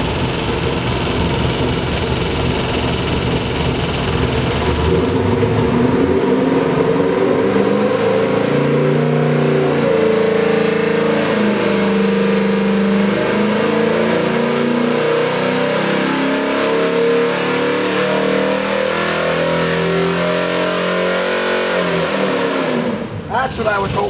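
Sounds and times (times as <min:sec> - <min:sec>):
engine running hard under load: 0:00.0 - 0:09.4.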